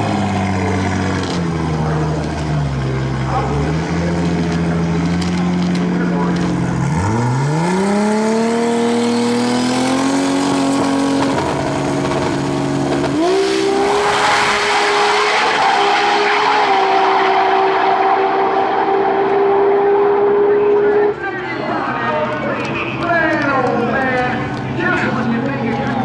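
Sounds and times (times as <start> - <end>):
racing car engine at full throttle: 0.0 - 26.0
rushing noise: 10.4 - 19.2.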